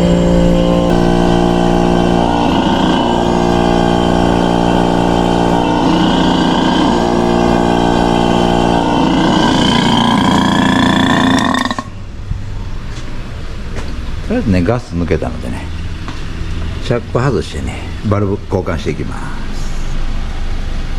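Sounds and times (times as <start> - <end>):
machine humming: 0.0 - 14.5
high whine: 0.0 - 14.8.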